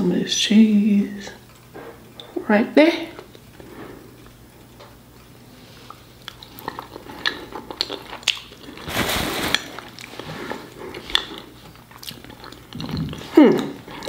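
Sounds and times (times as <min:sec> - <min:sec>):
wet chewing of food: 0:05.1 - 0:08.9, 0:09.5 - 0:14.0.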